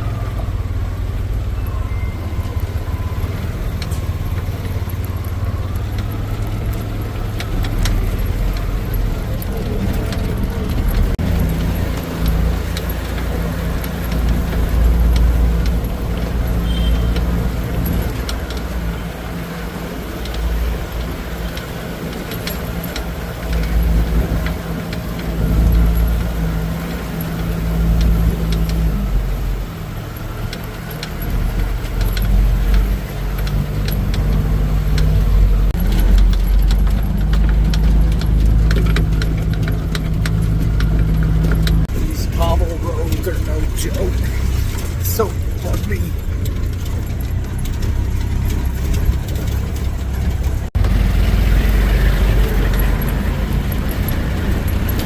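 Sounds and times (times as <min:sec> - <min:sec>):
small engine droning: 0:00.0 - 0:55.0
cab fittings rattling: 0:30.0 - 0:50.9
heavy low rumble: 0:31.3 - 0:55.0.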